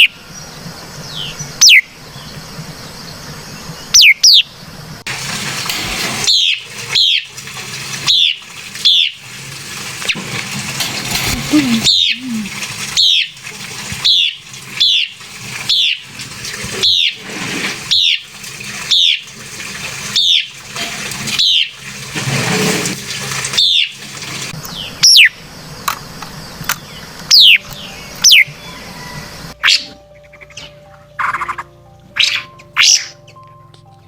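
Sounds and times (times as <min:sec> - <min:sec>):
bird downslurred calls: 0:11.4 - 0:13.3.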